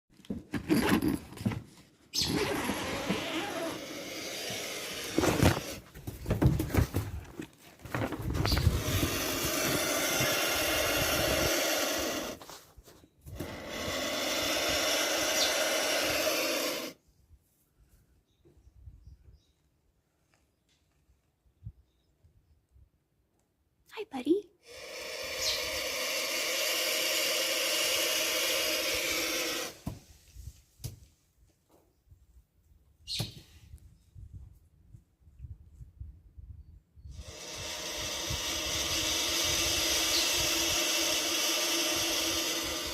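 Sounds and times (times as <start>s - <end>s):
vulture chick hissing: 2.2s - 5.8s, 8.5s - 12.6s, 13.3s - 17.0s, 24.6s - 29.8s, 37.1s - 42.9s.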